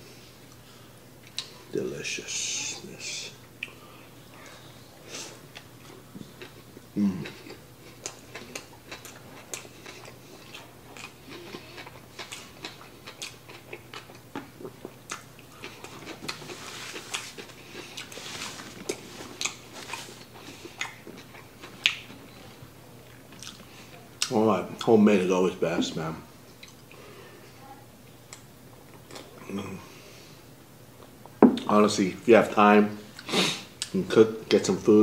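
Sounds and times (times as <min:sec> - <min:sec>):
close-up chewing: 0:05.5 - 0:24.4.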